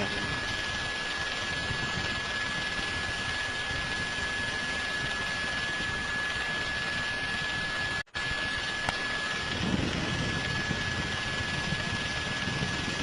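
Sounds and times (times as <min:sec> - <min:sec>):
aircraft engine rush: 0:00.0 - 0:13.0
high-pitched whine: 0:00.0 - 0:13.0.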